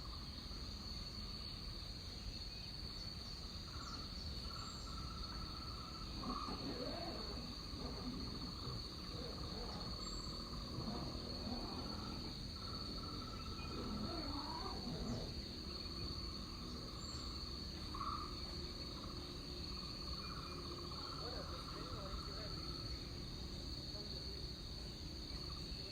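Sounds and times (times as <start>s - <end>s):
insects high-pitched drone: 0.0s - 25.9s
lower pulsing insect trill: 0.0s - 25.9s
faint sweeping animal calls: 3.7s - 22.9s.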